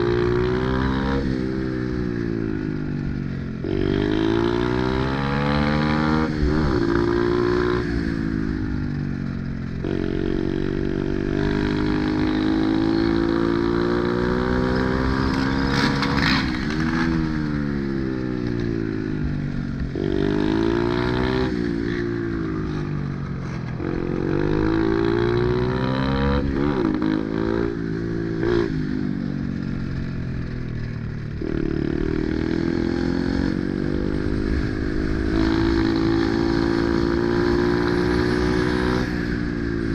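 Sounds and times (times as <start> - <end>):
small motorcycle engine revving: 0.0 - 39.9
brief clatter: 15.3 - 17.2.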